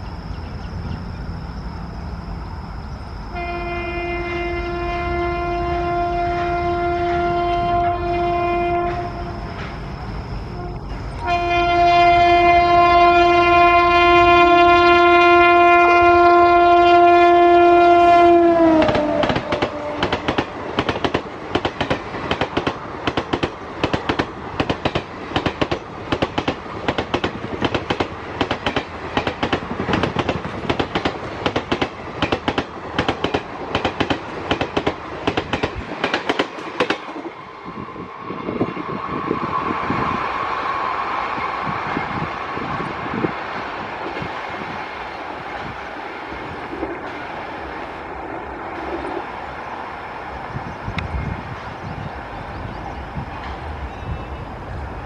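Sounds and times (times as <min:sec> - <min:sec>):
locomotive air horn: 0:03.3 - 0:09.7, 0:10.5 - 0:20.3
train wheels clickety-clack: 0:06.2 - 0:11.5, 0:18.7 - 0:37.5, 0:53.2 - 0:54.4.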